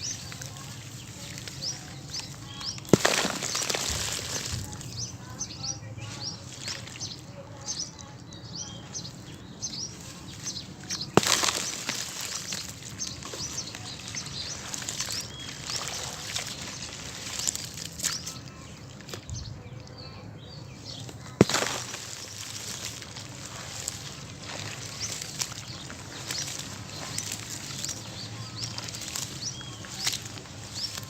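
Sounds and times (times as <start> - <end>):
crumbling scattering debris: 0.0 - 5.0, 10.2 - 19.2, 21.0 - 31.0
sand-cement chunks being smashed: 0.0 - 5.0, 6.2 - 7.3, 9.8 - 19.3, 20.9 - 31.0.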